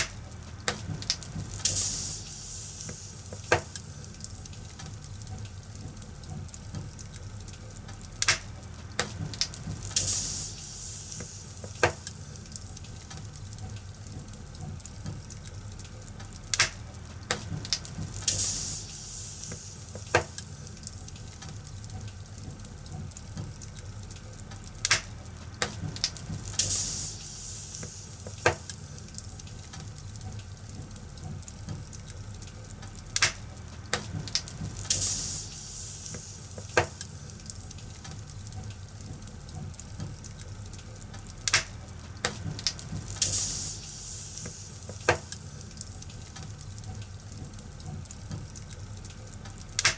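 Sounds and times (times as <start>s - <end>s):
wood fire crackling: 0.0s - 49.9s
hissing bursts: 1.6s - 3.6s, 9.9s - 12.1s, 18.2s - 20.4s, 26.5s - 28.8s, 34.8s - 36.9s, 43.2s - 45.2s.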